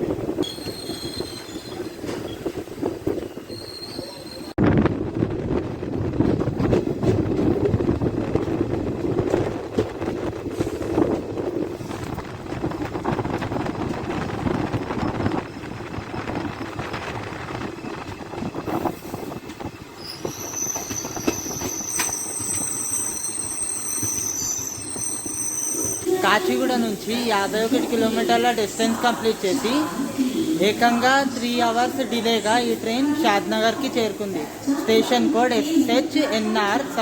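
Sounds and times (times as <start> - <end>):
train wheels rumbling and clattering: 0.0 - 37.0
high brake squeal: 0.4 - 2.4, 3.3 - 4.6, 20.0 - 26.1.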